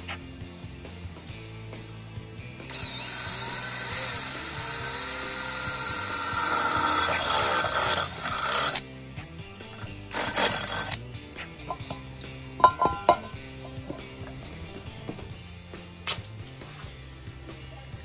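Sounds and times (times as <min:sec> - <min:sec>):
drill squealing through metal: 0:02.7 - 0:08.8, 0:09.8 - 0:11.0.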